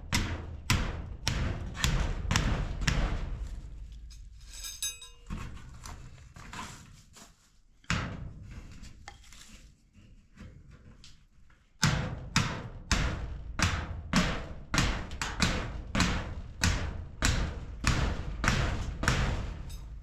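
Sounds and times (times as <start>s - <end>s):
short metallic ring: 4.2s - 5.4s.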